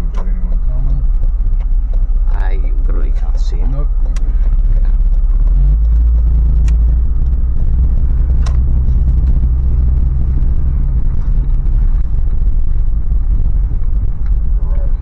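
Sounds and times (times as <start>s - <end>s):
car cabin engine drone: 0.0s - 15.0s
light clicks: 6.5s - 7.0s.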